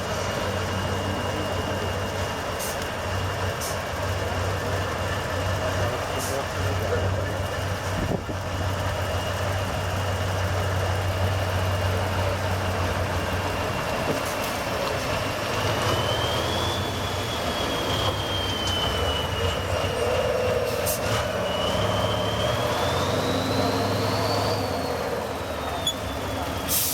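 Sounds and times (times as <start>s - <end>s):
truck engine running: 0.0s - 26.9s
high whine: 16.0s - 26.9s.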